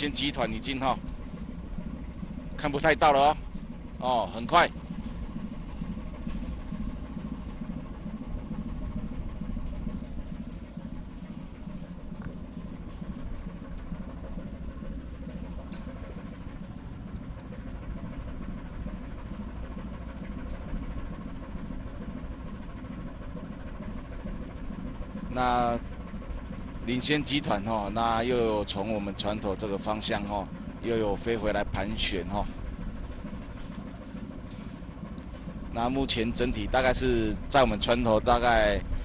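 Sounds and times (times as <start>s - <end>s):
ship's engine droning: 0.0s - 39.0s.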